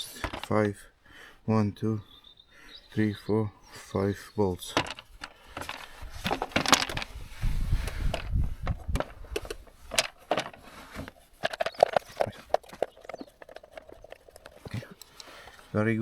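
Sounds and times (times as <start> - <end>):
clicks and knocks of engine parts: 0.0 - 0.6, 4.6 - 15.7.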